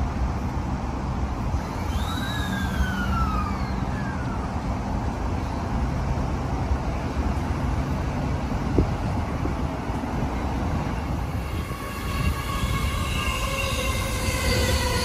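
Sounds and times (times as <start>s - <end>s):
train low rumble: 0.0s - 15.0s
high whine gliding down: 1.4s - 5.5s, 10.6s - 15.0s.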